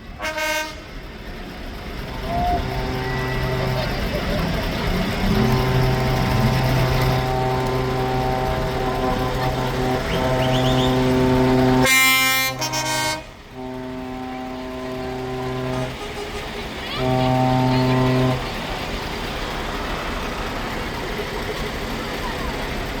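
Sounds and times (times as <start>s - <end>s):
truck air horns blowing: 0.0s - 1.2s, 2.0s - 21.4s
harsh short horn blast: 0.2s - 0.9s, 2.2s - 18.7s.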